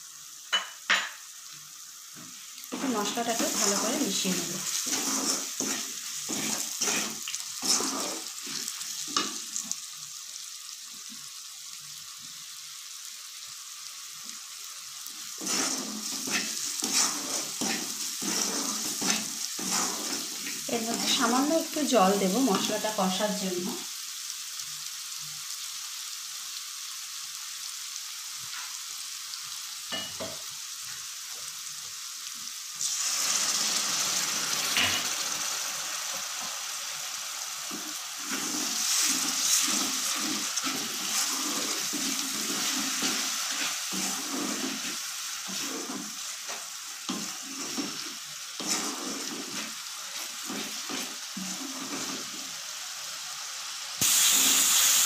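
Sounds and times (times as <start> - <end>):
spices sizzling in hot oil: 0.0 - 55.0
spatula stirring and scraping: 2.7 - 9.8, 15.3 - 21.8, 37.6 - 52.6.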